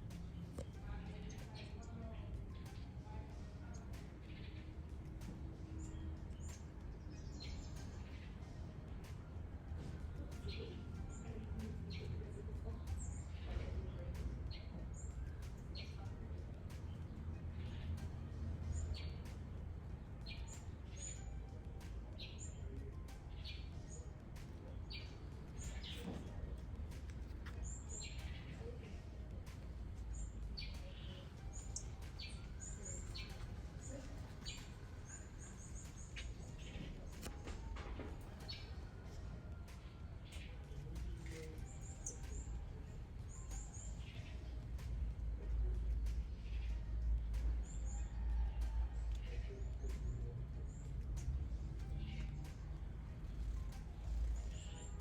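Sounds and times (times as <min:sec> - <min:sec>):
steady low rumble: 0:00.0 - 0:55.0
wild birds chirping: 0:00.0 - 0:55.0.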